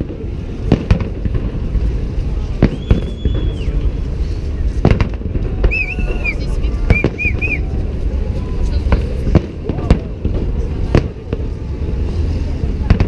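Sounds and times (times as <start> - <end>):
continuous low rumble: 0.0 - 13.0
high steady whistle: 2.7 - 3.8, 5.6 - 7.7.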